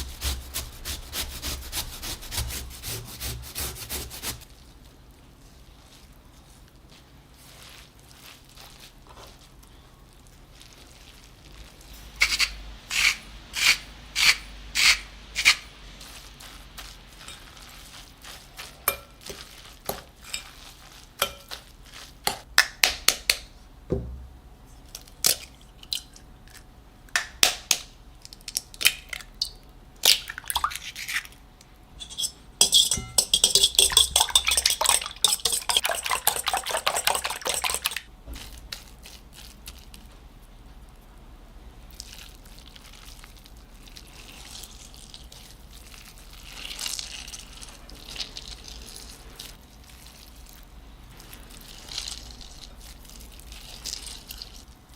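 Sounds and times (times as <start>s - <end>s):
utensils clinking against dishes: 32.0s - 38.0s.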